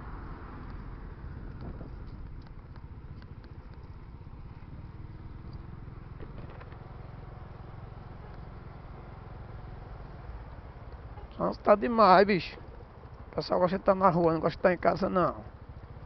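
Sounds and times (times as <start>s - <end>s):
vehicle engine and road noise: 0.0s - 16.0s
faint ticks: 5.4s - 5.7s.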